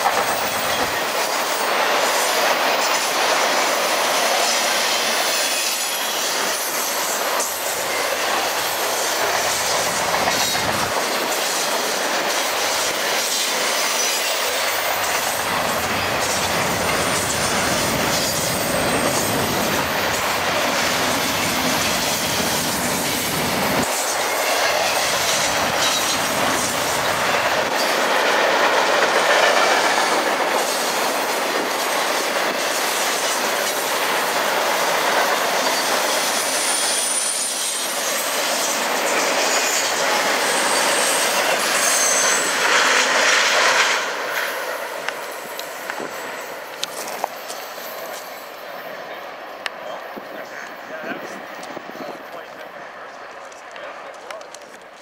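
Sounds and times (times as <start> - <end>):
steel wheels clattering on rails: 0.0 - 48.5
high wheel squeals: 35.6 - 42.7.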